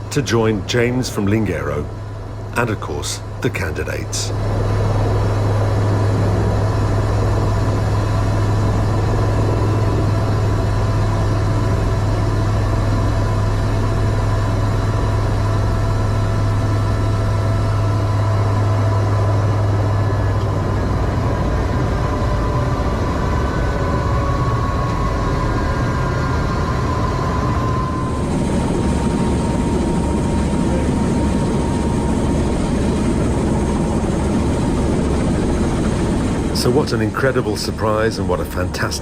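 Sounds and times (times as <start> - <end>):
helicopter low hum: 0.0 - 39.0.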